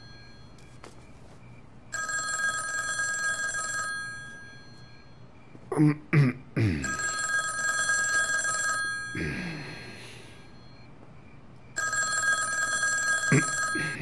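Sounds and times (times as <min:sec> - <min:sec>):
telephone bell ringing: 0:00.0 - 0:00.8, 0:01.9 - 0:05.3, 0:06.8 - 0:10.9, 0:11.8 - 0:14.0.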